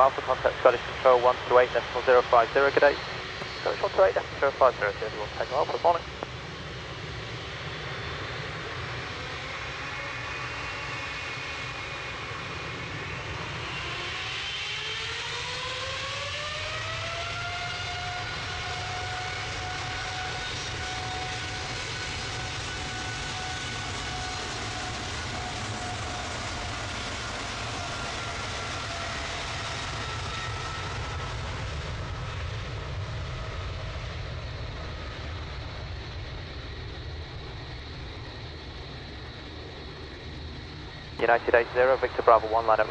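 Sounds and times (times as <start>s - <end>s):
jet engine rumble: 0.0s - 42.9s
jet engine whine climbing: 0.0s - 42.9s.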